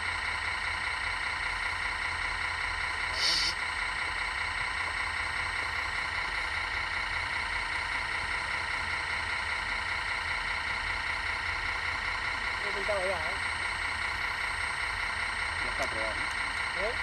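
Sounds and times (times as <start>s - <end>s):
model excavator mechanical whine: 0.0s - 17.0s.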